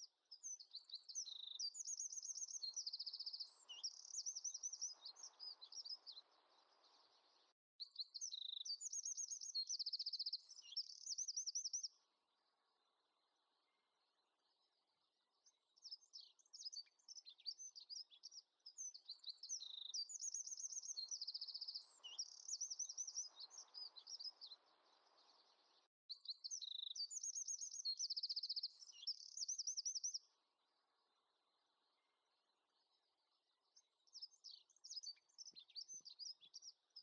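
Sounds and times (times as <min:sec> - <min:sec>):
songbird chirping and trilling: 0:00.0 - 0:37.0.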